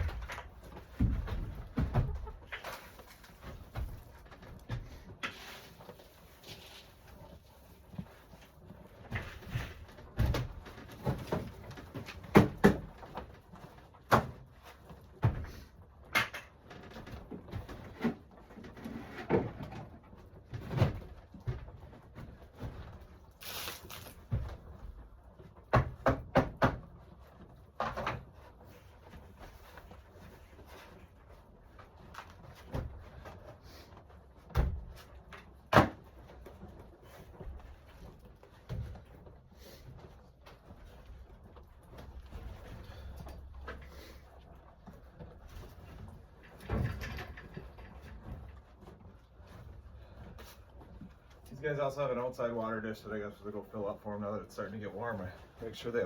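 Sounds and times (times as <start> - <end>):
irregular knocks and thumps: 0.0 - 2.7.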